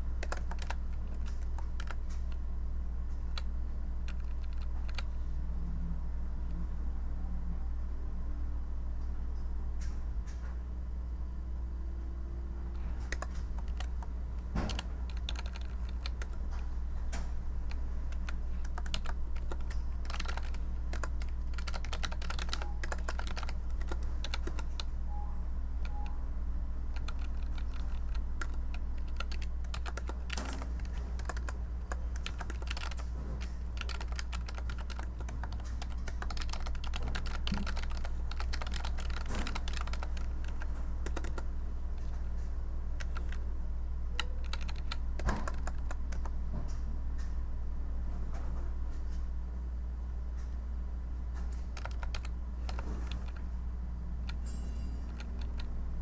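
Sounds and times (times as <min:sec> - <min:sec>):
steady low hum: 0:00.0 - 0:56.0
computer keyboard key clicks: 0:00.2 - 0:02.4, 0:04.1 - 0:05.1, 0:12.8 - 0:16.7, 0:17.7 - 0:24.9, 0:27.0 - 0:42.2, 0:43.0 - 0:43.4, 0:44.2 - 0:46.4, 0:51.6 - 0:53.5, 0:54.2 - 0:55.7.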